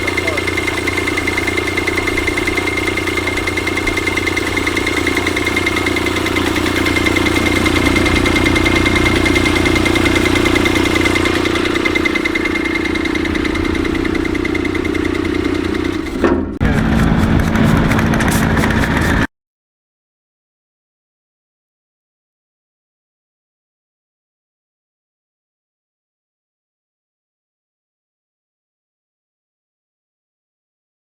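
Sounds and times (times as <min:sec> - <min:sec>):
constant high whine: 0:00.0 - 0:19.3
stationary engine running: 0:00.0 - 0:19.3.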